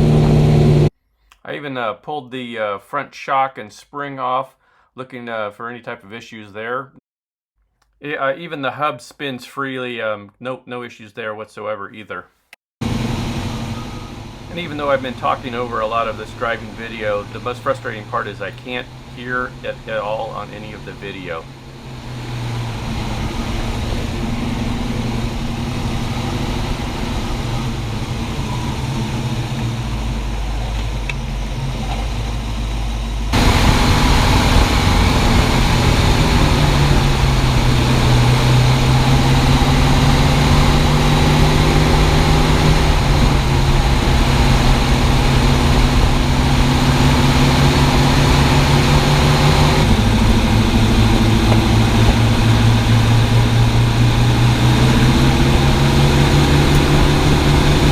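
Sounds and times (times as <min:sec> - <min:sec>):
car engine running: 0:00.0 - 0:00.9, 0:12.8 - 0:57.9
road and wind noise: 0:00.0 - 0:00.9, 0:12.8 - 0:57.9.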